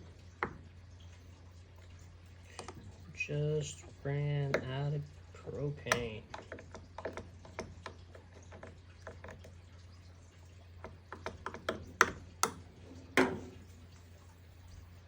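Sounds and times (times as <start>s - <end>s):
steady low hum: 0.0s - 15.0s
light clicks and taps: 1.8s - 3.1s, 3.8s - 9.9s, 10.8s - 14.1s.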